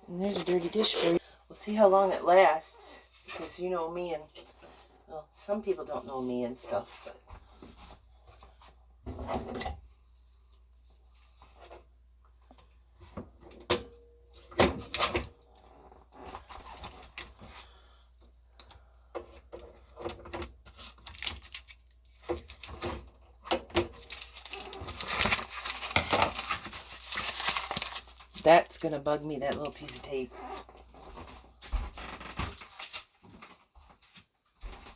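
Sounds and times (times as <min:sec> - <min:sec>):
plastic parts clicking and rattling: 0:18.6 - 0:28.4
packing rustling: 0:23.8 - 0:28.4.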